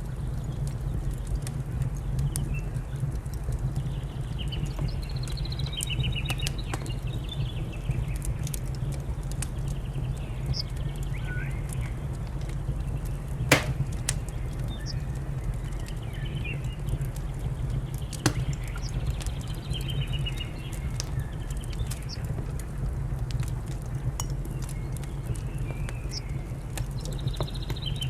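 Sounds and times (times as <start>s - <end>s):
wood fire crackling and popping: 13.5s - 14.6s, 18.3s - 18.9s.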